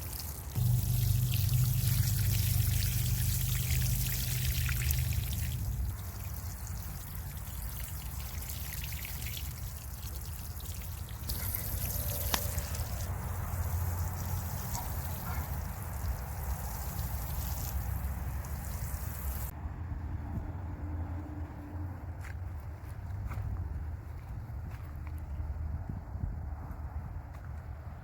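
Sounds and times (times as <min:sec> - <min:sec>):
water pouring: 0:00.0 - 0:19.5
low rumble: 0:00.6 - 0:06.2.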